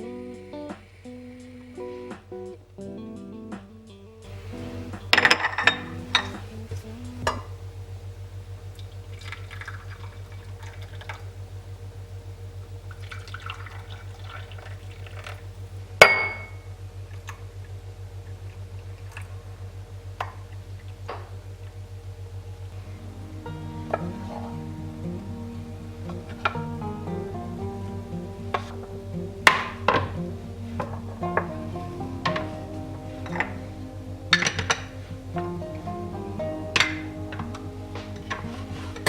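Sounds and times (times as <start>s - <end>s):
steady low hum: 0.0s - 39.0s
glass clink: 5.1s - 6.4s, 16.0s - 16.6s
dishware clinking: 5.1s - 6.6s
liquid pouring: 8.8s - 11.3s, 12.9s - 15.5s.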